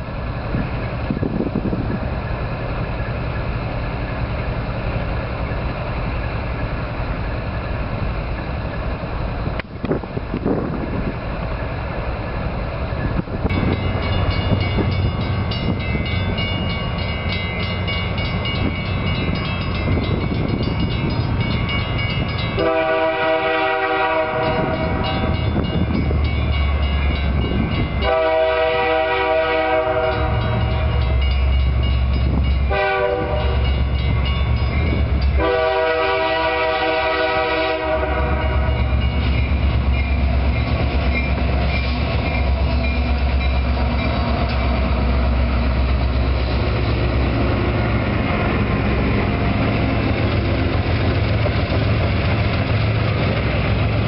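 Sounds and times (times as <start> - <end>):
diesel locomotives rumbling past: 0.0 - 54.0
locomotive horn blasts: 22.5 - 25.3, 28.0 - 31.0, 32.6 - 33.8, 35.4 - 39.0.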